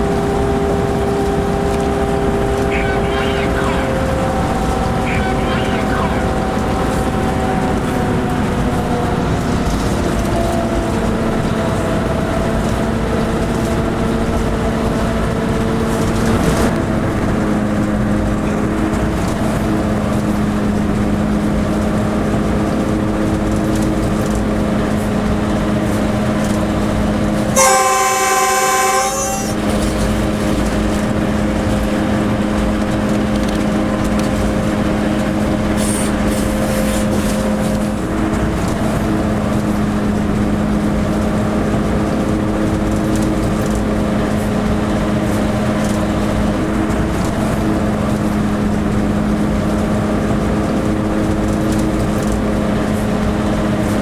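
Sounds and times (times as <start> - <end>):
locomotive engine drone: 0.0 - 54.0
locomotive horn: 2.3 - 8.0, 27.5 - 30.4.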